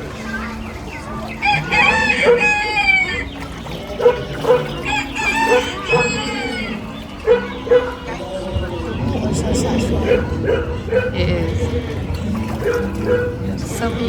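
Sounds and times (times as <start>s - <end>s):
hen clucking: 0.0s - 14.0s
rooster crowing: 1.3s - 3.4s, 4.4s - 8.0s.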